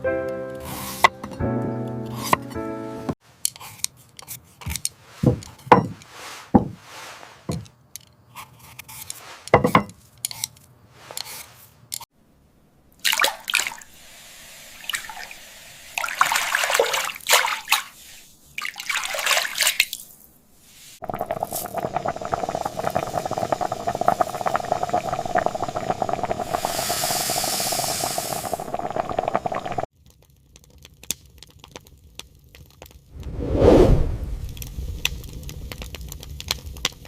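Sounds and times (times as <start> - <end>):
water splashing and dripping: 13.0 - 14.0, 14.8 - 20.1.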